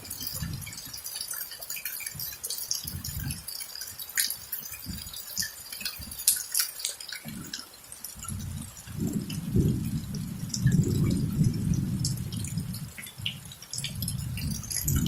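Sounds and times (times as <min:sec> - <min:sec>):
rain with dripping water: 0:00.0 - 0:15.0.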